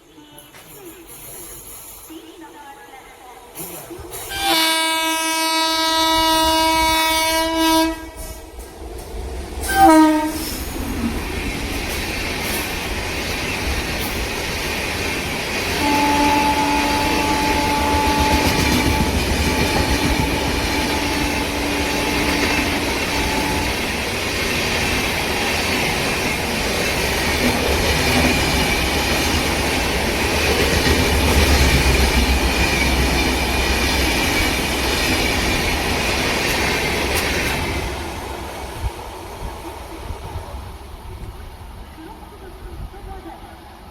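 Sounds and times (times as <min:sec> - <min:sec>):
train wheels rumbling on rail: 0:03.5 - 0:43.8
locomotive horn blasts: 0:04.3 - 0:08.4, 0:09.7 - 0:10.6, 0:15.8 - 0:24.0.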